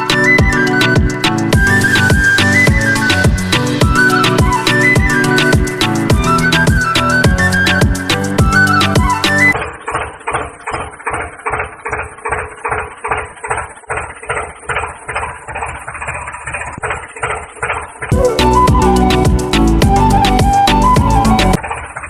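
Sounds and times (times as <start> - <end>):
background music: 0.0 - 9.6, 18.1 - 21.6
rhythmic mechanical strokes: 0.0 - 22.0.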